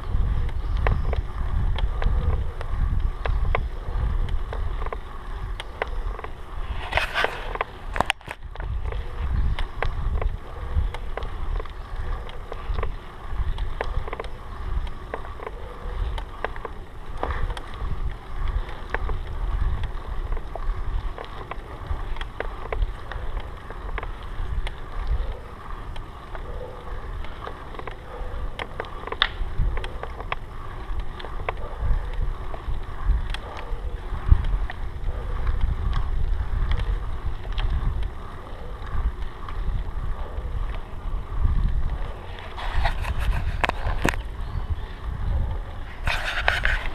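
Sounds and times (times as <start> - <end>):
wind rumble on microphone: 0.0 - 46.9
small clicks and rattles: 7.5 - 26.4.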